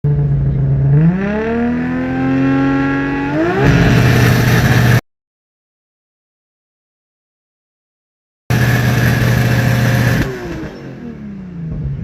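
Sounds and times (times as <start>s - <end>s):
car engine revving: 0.2s - 5.0s, 8.5s - 12.0s.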